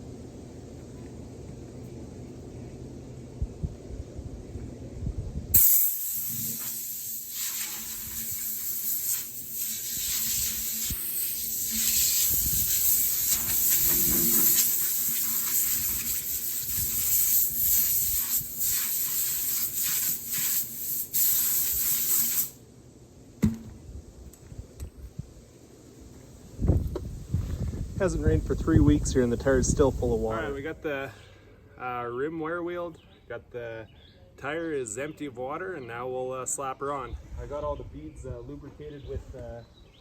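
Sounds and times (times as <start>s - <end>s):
faint motor hum: 0.0s - 5.5s
wire wheel scouring metal: 7.5s - 18.7s.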